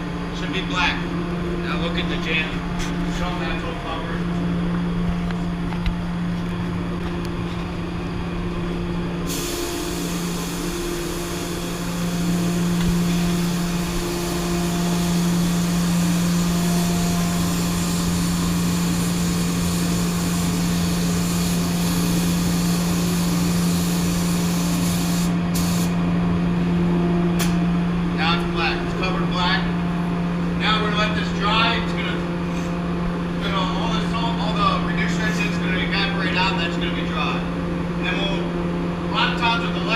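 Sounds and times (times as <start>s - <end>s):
steady hum: 0.0s - 39.9s
muffled paint spray gun hissing: 9.2s - 26.0s.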